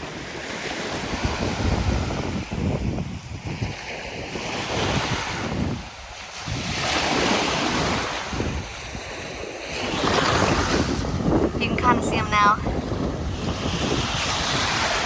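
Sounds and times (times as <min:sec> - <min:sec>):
small waves washing on shore: 0:00.0 - 0:15.0
wind buffeting microphone: 0:00.0 - 0:15.0.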